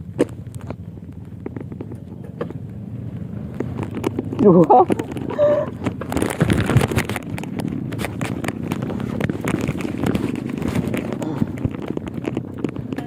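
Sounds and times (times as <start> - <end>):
sharp clicks and rattles: 0.0 - 13.0
vehicle rumbling over rough ground: 0.0 - 13.0.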